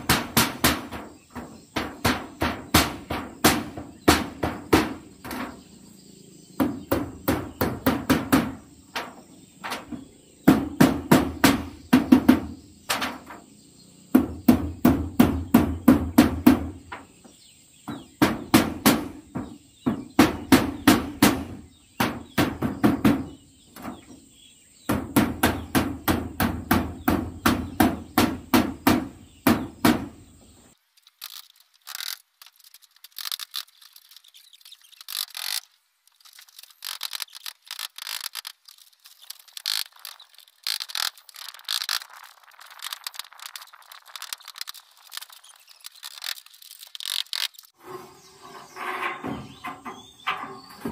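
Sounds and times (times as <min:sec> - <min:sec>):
hammer nailing metal roofing: 0:00.0 - 0:05.6, 0:06.6 - 0:13.4, 0:14.1 - 0:17.2, 0:17.8 - 0:24.2, 0:24.8 - 0:30.2, 0:47.9 - 0:50.9.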